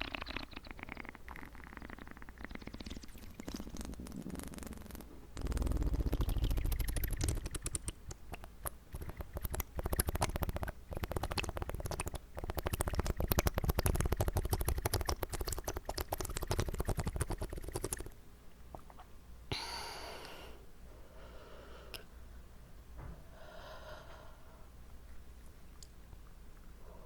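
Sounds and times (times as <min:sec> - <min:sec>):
wet mouth clicks and smacks: 0:00.1 - 0:19.1
person breathing: 0:19.5 - 0:22.2, 0:23.2 - 0:24.8, 0:26.8 - 0:27.0.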